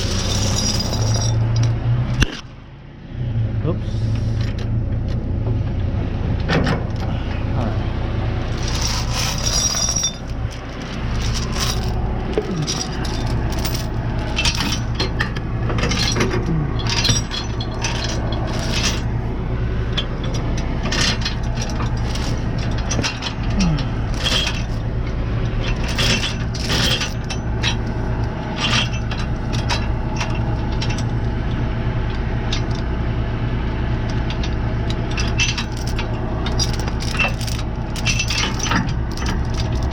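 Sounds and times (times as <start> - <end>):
metal chains clinking: 0.0 - 1.8, 8.5 - 19.1, 20.0 - 24.9, 25.6 - 31.2, 34.4 - 39.9
diesel engine idling: 0.0 - 39.9.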